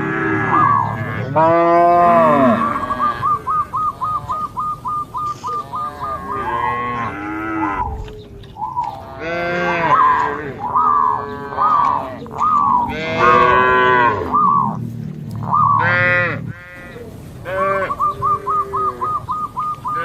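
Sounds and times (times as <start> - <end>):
cattle mooing: 0.0 - 8.2, 8.8 - 19.2, 19.8 - 20.0.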